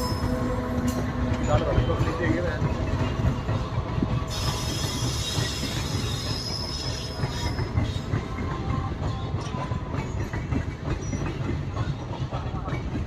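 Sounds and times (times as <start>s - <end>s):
train rumbling on track: 0.0s - 13.0s
high-pitched wheel squeal: 4.3s - 8.2s.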